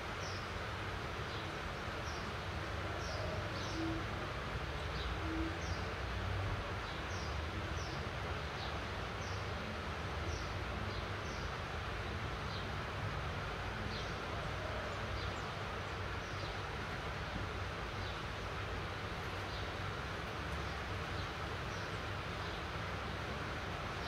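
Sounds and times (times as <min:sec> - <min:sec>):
rain hissing on rooftops: 0:00.0 - 0:24.0.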